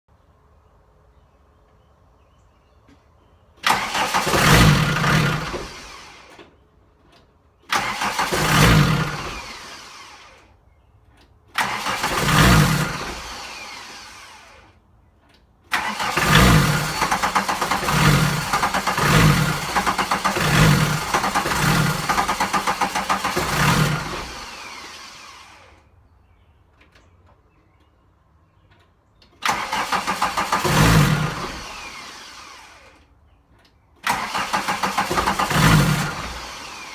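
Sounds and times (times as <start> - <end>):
diesel engine cranking and dying: 3.6 - 10.6, 11.4 - 14.8, 15.6 - 26.0, 29.3 - 33.2, 34.0 - 36.9.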